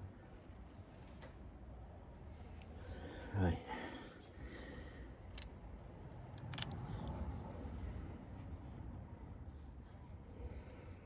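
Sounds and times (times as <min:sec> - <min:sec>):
small engine parts clicking: 0:06.4 - 0:06.8.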